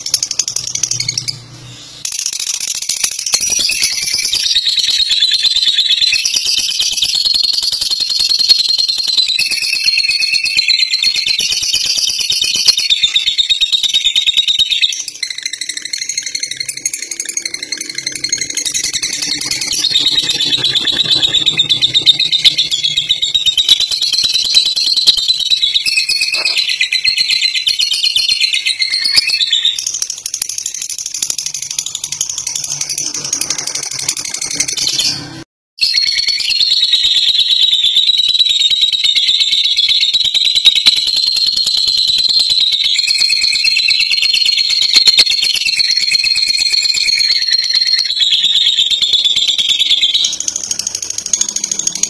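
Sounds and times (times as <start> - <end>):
lovebird chattering trill: 0.0 - 35.3.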